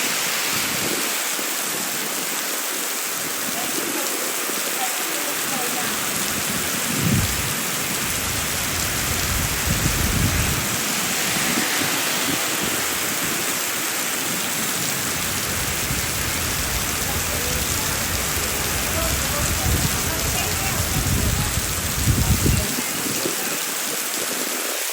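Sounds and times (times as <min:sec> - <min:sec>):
heavy rain pouring: 0:00.0 - 0:24.9
low rumbles: 0:06.2 - 0:22.7.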